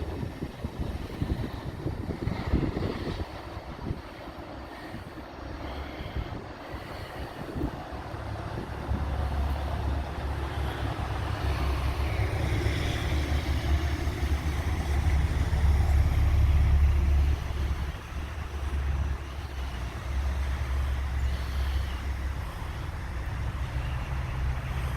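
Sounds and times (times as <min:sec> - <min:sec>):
freight train rumbling past: 0:00.0 - 0:24.9.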